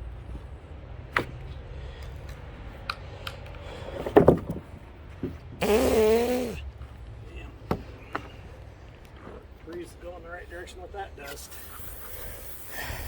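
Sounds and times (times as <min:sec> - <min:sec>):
heavy wooden knocks: 0:04.0 - 0:04.7.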